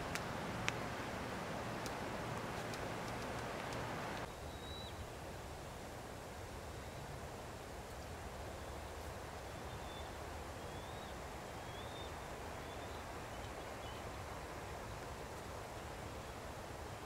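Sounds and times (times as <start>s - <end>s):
outdoor background noise: 0.0s - 17.0s
faint high bird chirps: 4.3s - 5.1s.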